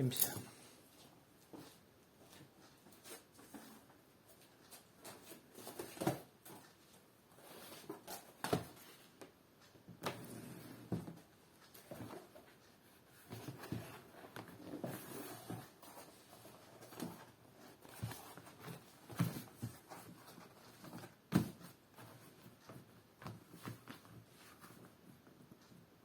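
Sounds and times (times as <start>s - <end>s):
cover rustling and scuffing: 13.1s - 24.8s.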